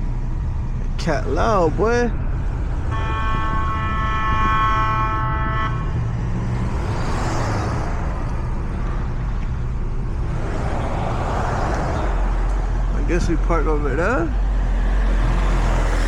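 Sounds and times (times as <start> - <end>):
car engine rumbling: 0.0 - 16.0
car horn: 2.8 - 6.3.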